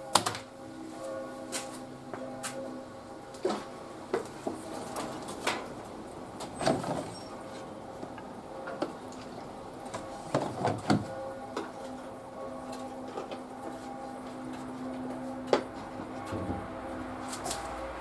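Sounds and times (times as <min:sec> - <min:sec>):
washing machine hum: 0:04.0 - 0:13.9, 0:14.5 - 0:18.0
washing machine clicks and thumps: 0:10.3 - 0:11.2.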